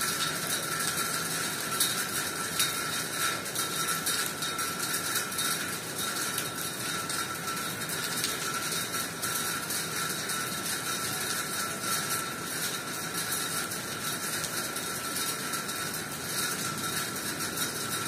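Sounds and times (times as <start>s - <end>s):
rain on concrete and leaves: 0.0s - 18.0s.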